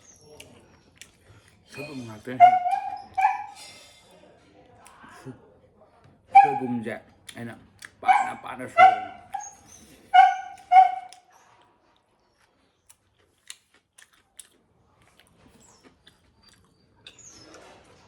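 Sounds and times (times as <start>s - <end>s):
dog barking: 1.8s - 3.6s, 6.4s - 6.8s, 8.0s - 11.2s.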